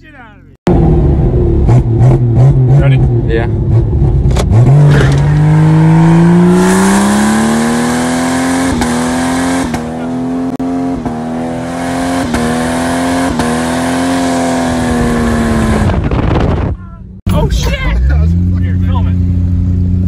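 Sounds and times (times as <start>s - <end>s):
car engine revving hard: 0.7s - 16.7s.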